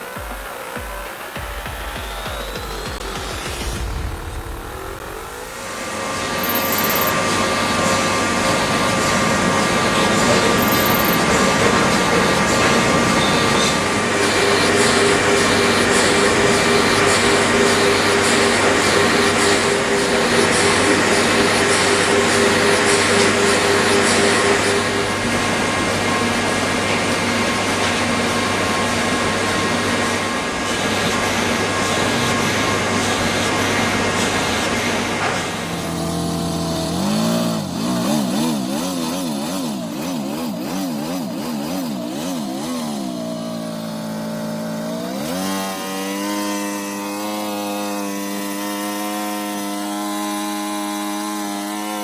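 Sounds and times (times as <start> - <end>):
steady tones: 0.0 - 8.1
small model engine running: 0.0 - 52.0.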